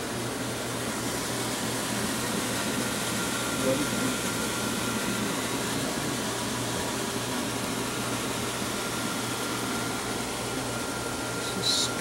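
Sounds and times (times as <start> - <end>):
faint high whine: 8.8 - 12.0.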